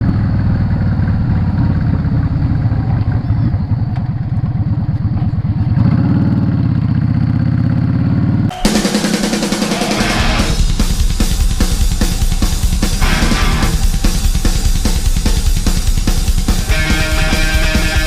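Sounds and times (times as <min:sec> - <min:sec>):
motorcycle engine running: 0:00.0 - 0:18.0
drum-heavy music: 0:08.5 - 0:18.0.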